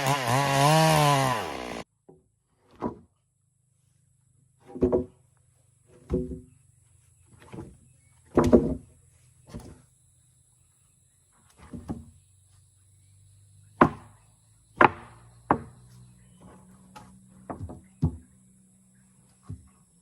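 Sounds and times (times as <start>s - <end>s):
wood pieces knocking together: 8.3s - 8.8s.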